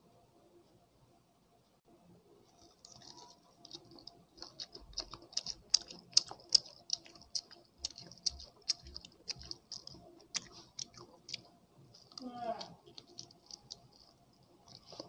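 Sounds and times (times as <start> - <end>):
chewing corn kernels: 2.5 - 15.0.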